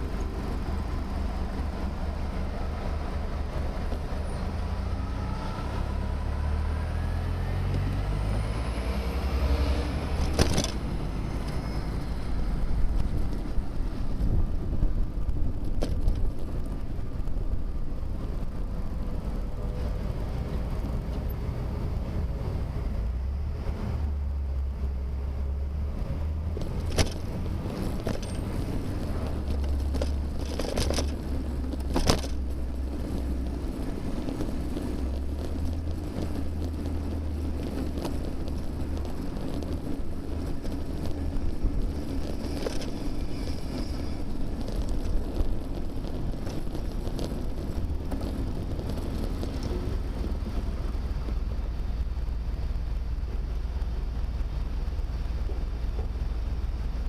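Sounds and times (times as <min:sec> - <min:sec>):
rolling road noise: 0:00.0 - 0:57.0
wind rumble on microphone: 0:00.0 - 0:57.0
bicycle knocks and rattles: 0:10.2 - 0:10.9, 0:14.2 - 0:16.8, 0:26.6 - 0:32.6, 0:36.2 - 0:43.2.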